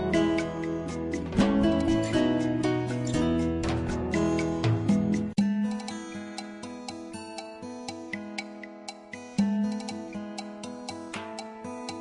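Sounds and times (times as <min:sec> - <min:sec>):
light ticking beat: 0:00.0 - 0:12.0.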